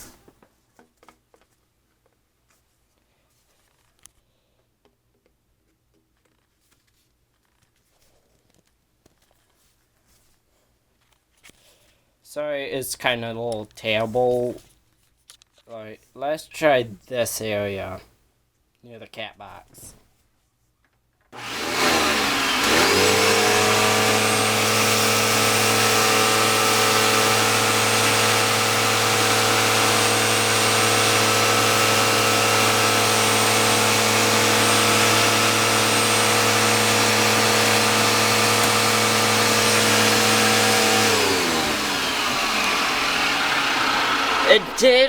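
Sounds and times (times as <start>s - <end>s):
vacuum cleaner motor whining: 21.4s - 45.0s.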